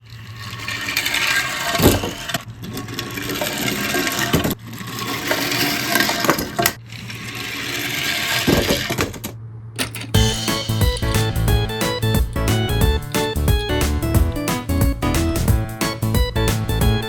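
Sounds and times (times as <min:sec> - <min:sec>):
toy cars rolling down track: 0:00.0 - 0:10.2.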